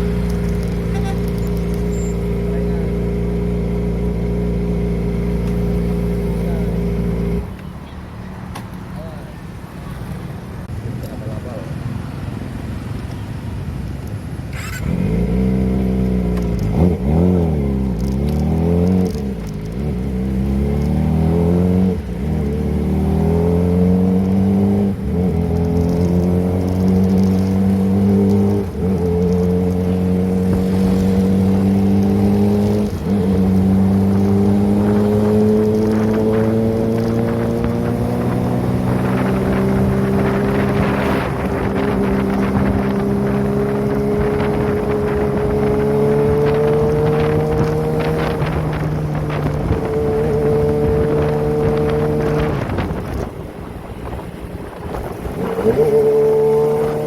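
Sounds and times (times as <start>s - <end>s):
motorcycle engine revving: 0.0s - 7.5s, 14.5s - 57.0s.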